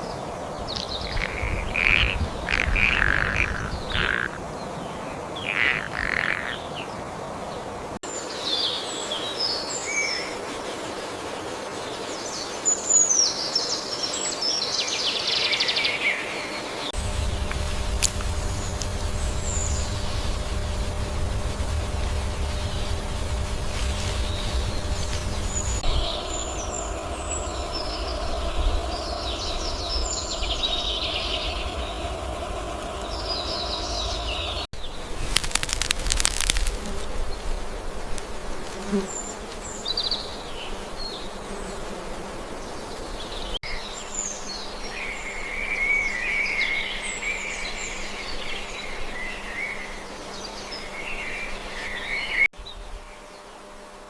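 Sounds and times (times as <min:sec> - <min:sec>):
small birds chirping: 0:00.0 - 0:07.0, 0:14.2 - 0:37.4
trilling birdsong: 0:00.0 - 0:10.4, 0:14.3 - 0:36.6
insect buzz: 0:00.0 - 0:54.0
brief rush of noise: 0:17.0 - 0:34.7
low rumble: 0:17.0 - 0:34.7.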